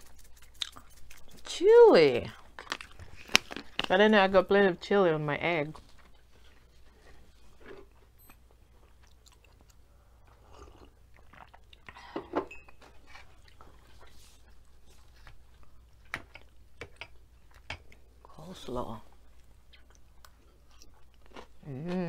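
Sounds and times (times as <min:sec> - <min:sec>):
chewing and mouth sounds: 0:00.0 - 0:01.5, 0:02.2 - 0:03.9, 0:08.7 - 0:12.0, 0:13.0 - 0:18.1, 0:19.2 - 0:22.0.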